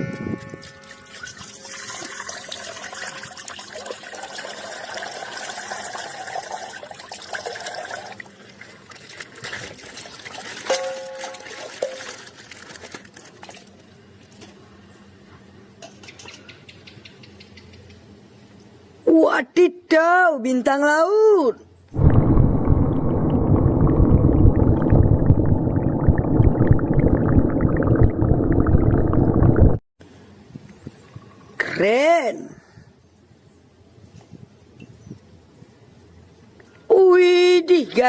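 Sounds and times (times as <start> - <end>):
plastic packaging rustling: 11.5 - 13.8.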